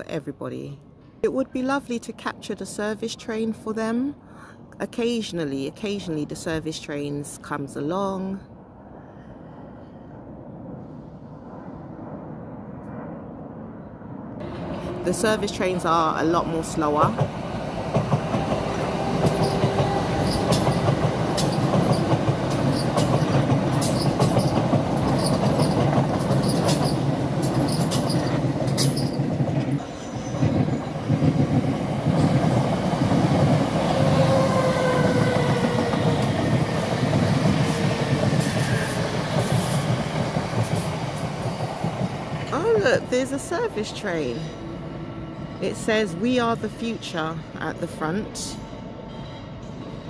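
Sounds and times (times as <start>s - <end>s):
train wheels rumbling on rails: 14.4s - 50.0s
wheel squeal: 19.3s - 20.8s, 22.7s - 27.0s, 27.6s - 29.2s.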